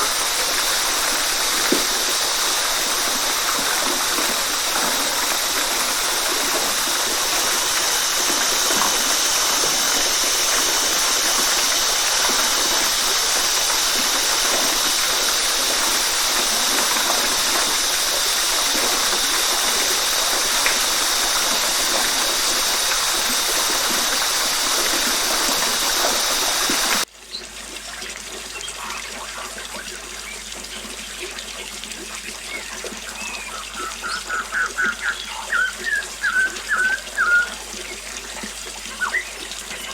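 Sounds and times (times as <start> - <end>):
waterfall rushing: 0.0 - 27.1, 33.1 - 37.8
trickling stream: 0.0 - 39.9
high chirps: 33.2 - 37.6.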